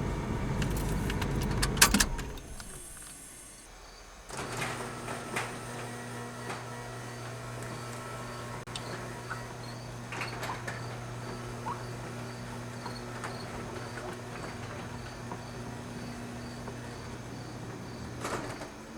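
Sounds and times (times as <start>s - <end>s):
car engine idling: 0.0s - 3.7s.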